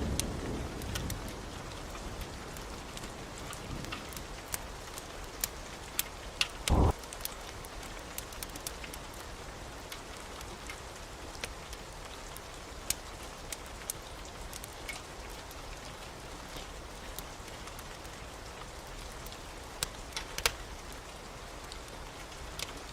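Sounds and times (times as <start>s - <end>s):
steady rain falling: 0.0s - 22.9s
loud low thump: 6.7s - 6.9s.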